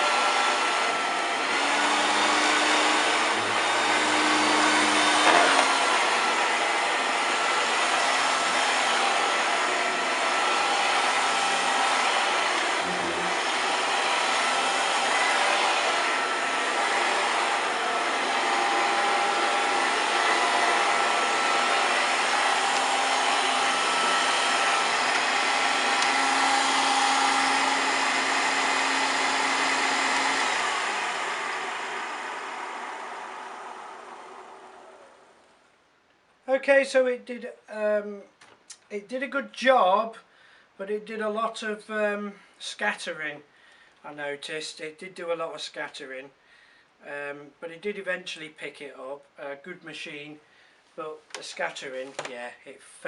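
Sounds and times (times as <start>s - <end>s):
vacuum cleaner running: 0.0s - 35.5s.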